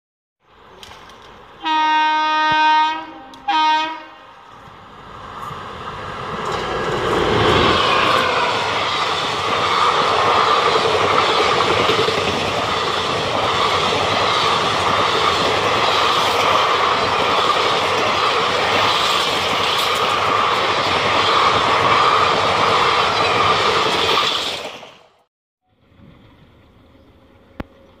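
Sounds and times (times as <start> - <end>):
train passing at speed: 0.5 - 25.3
train horn blasts: 1.6 - 4.4.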